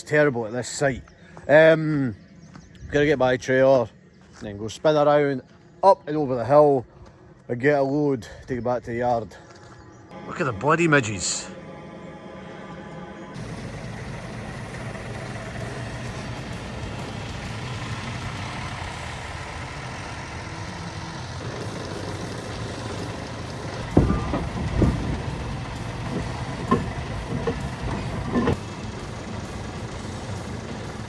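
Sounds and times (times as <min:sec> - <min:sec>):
truck diesel engine running: 0:13.4 - 0:31.0
loud clunks: 0:22.4 - 0:29.8.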